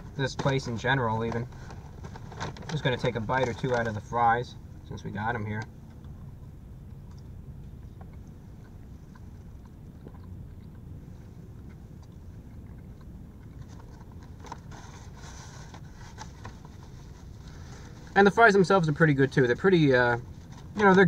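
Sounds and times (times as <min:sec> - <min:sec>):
paper bag crinkling: 0:00.4 - 0:04.1
low rumble: 0:01.1 - 0:20.9
chewing french fries: 0:05.8 - 0:15.2.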